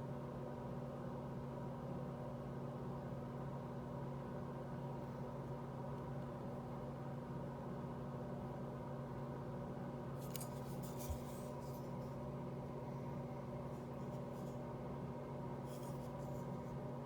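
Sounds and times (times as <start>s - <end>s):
steady electrical hum: 0.0s - 17.0s
hands rustling and scraping knife: 10.2s - 12.2s, 13.7s - 14.6s, 15.6s - 16.7s.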